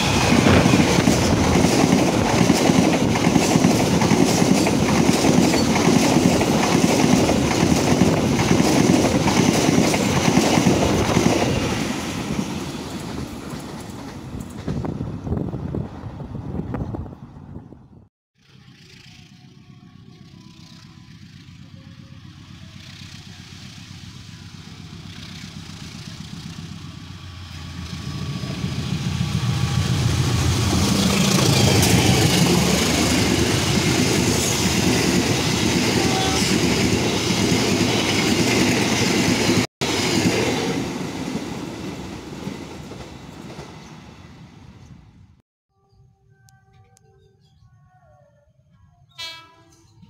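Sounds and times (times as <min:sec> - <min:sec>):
diesel passenger train passing: 0:00.0 - 0:45.4.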